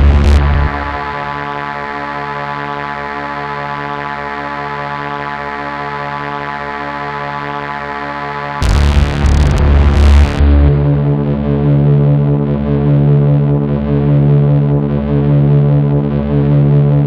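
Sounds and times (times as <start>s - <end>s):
loud musical passage: 0.0s - 2.3s
synthesizer drone chord: 0.0s - 12.8s.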